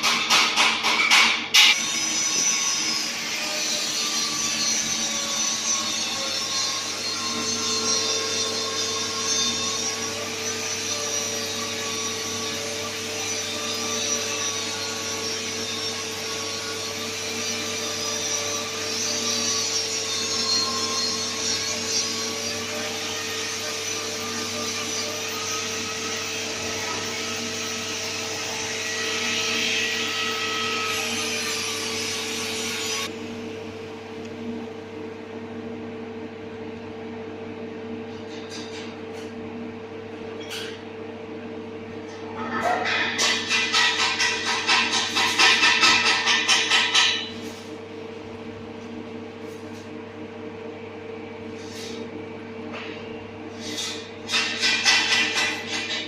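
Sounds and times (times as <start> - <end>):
machinery whine and hum: 1.7 - 46.2.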